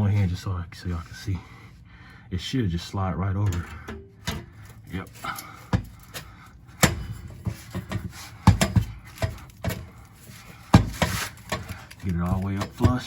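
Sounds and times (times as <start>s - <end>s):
exhaust pipe clanking and knocking: 3.4s - 13.0s.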